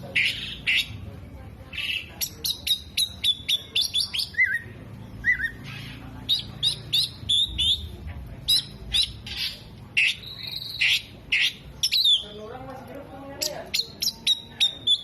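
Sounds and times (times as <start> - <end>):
bird singing whistled chirps: 2.2 - 5.7, 6.3 - 7.9, 8.5 - 12.4, 13.4 - 15.0.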